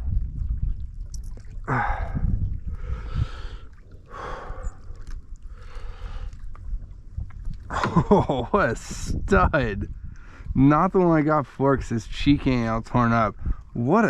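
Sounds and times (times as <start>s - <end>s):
low microphone rumble: 0.0s - 14.0s
man breathing hard: 1.7s - 6.4s.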